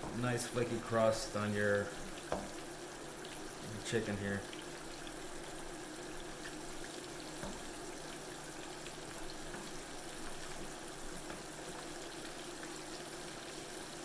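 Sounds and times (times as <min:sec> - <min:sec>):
chicken deep-frying in oil: 0:00.0 - 0:14.0.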